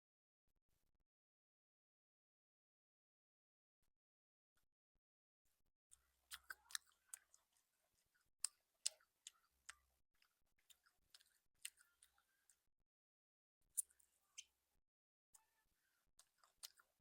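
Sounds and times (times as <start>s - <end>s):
person chewing food: 6.0s - 12.3s, 16.2s - 16.9s.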